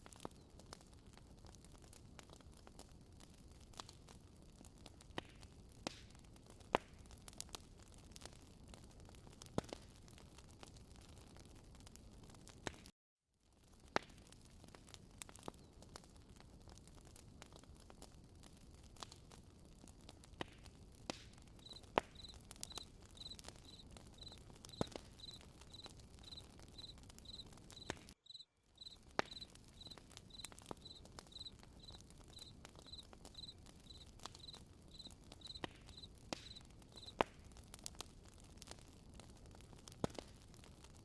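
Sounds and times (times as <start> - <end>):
campfire crackling and popping: 0.0 - 12.9, 13.6 - 41.0
cricket chirping: 21.6 - 37.1.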